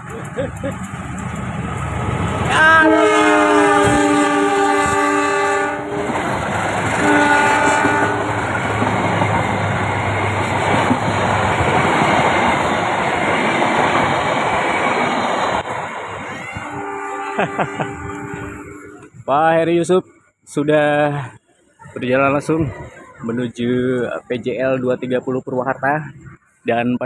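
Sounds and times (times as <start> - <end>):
locomotive horn blasts: 2.5 - 6.3, 7.0 - 8.4, 16.7 - 19.0.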